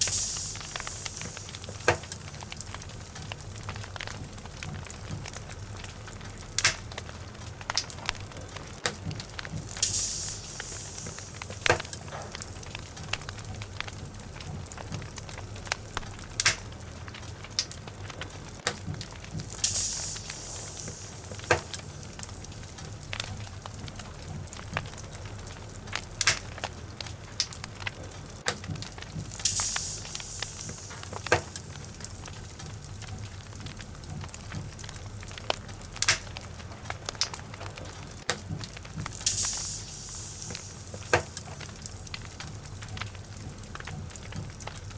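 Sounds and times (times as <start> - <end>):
high hissing: 0.0 - 2.9, 9.6 - 13.5, 19.4 - 23.3, 29.2 - 32.6, 39.0 - 42.6
logs crackling and popping in fire: 0.0 - 44.9
steady low rumble: 9.1 - 28.0.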